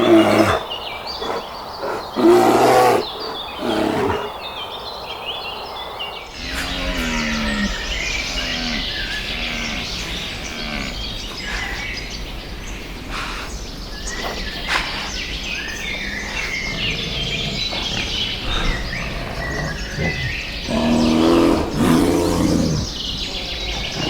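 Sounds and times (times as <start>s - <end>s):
birds chirping: 0.0s - 24.0s
animal mooing call: 6.3s - 11.8s, 16.2s - 24.0s.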